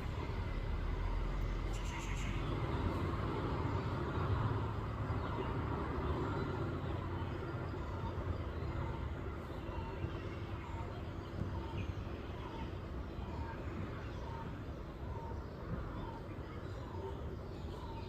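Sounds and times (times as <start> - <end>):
distant traffic rumble: 0.0 - 18.0.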